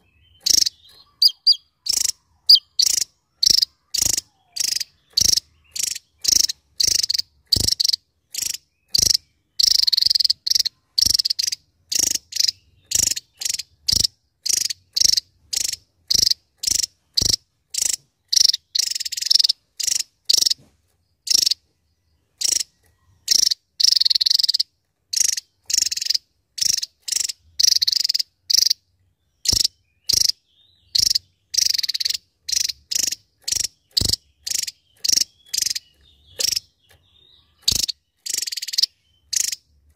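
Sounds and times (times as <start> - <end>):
bird singing sharp high notes: 0.0 - 15.2.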